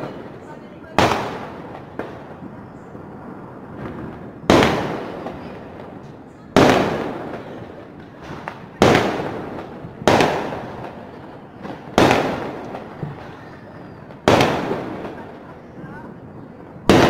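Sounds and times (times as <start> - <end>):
firework shells bursting: 3.6 - 15.3.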